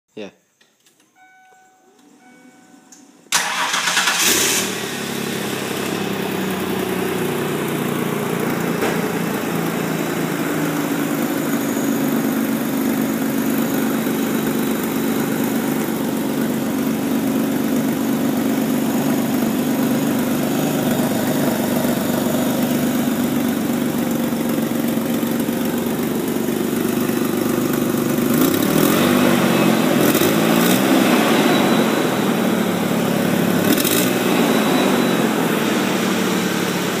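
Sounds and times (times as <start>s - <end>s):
electronic chime: 1.1s - 3.2s, 29.2s - 36.6s
truck engine starting and idling: 3.2s - 37.0s
engine revving: 3.4s - 7.3s, 28.2s - 37.0s.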